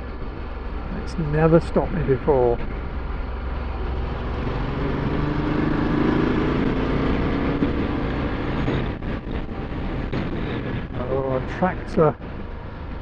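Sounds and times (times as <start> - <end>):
motorcycle engine cruising: 0.0 - 13.0
wind and road noise: 0.0 - 13.0.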